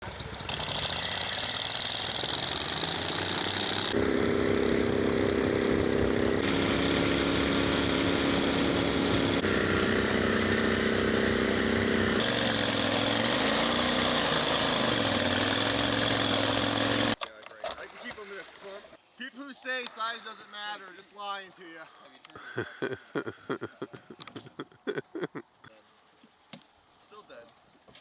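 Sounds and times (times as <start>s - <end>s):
boat motor running: 1.4s - 17.2s.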